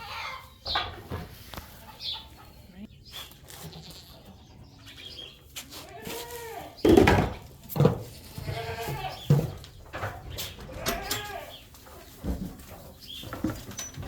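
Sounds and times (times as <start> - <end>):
goats bleating: 5.7 - 6.8, 8.2 - 9.3, 10.7 - 11.6.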